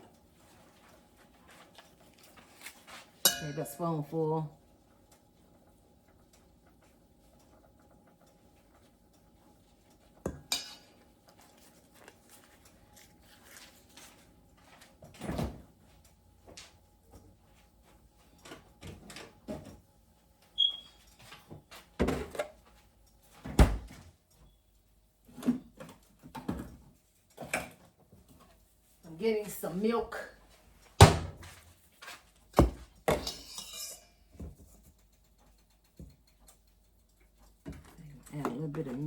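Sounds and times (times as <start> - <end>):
dishes and utensils clattering: 10.3 - 11.1, 33.1 - 34.5
brief high squeak: 20.6 - 21.0.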